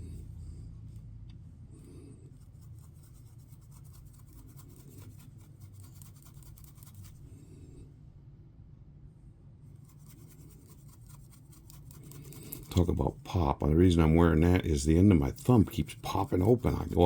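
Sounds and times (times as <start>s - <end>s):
low steady hum: 0.0s - 17.0s
small brush scratching: 2.3s - 7.3s, 9.7s - 17.0s.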